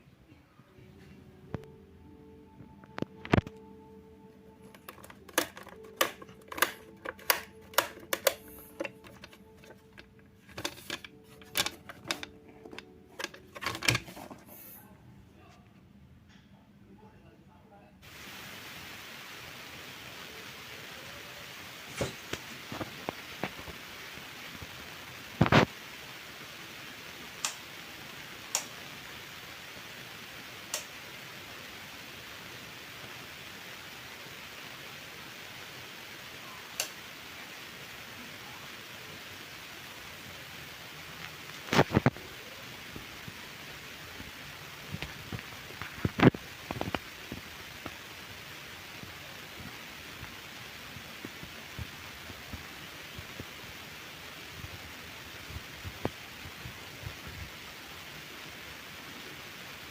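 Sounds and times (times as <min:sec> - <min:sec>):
sharp clicks and knocks: 0:04.7 - 0:14.5.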